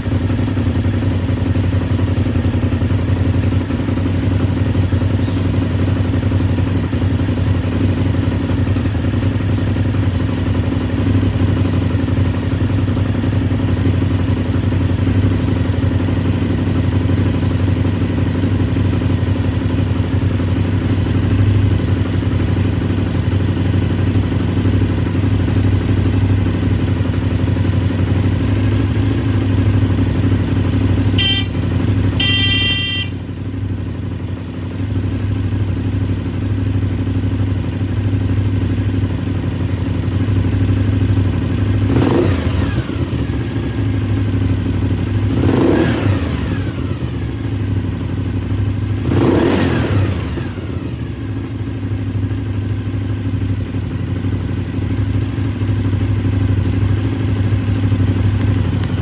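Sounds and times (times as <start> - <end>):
motorcycle engine idling and revving: 0.0 - 59.0
brief high-pitched tone: 31.2 - 31.6, 32.2 - 33.2.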